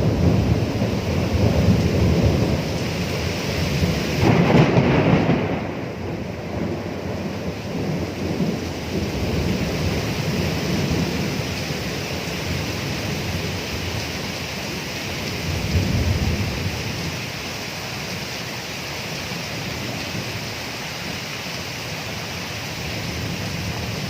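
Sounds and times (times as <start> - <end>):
thunder rumbling: 0.0 - 17.4
steady rain: 0.0 - 24.0.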